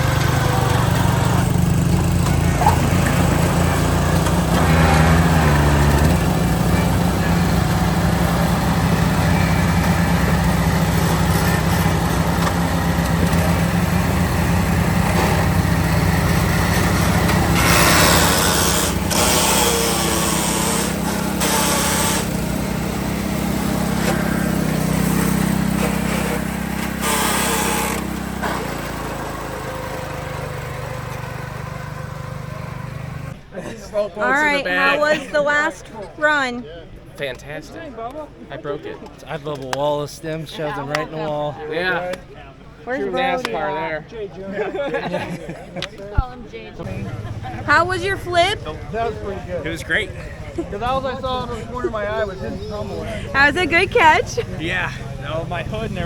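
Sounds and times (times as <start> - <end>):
riding lawn mower engine running: 0.0 - 33.4, 46.8 - 56.0.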